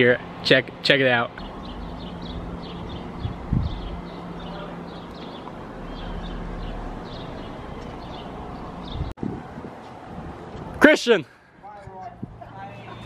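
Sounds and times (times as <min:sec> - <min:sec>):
steady low hum: 0:00.2 - 0:08.8
bird chirping: 0:01.4 - 0:09.1.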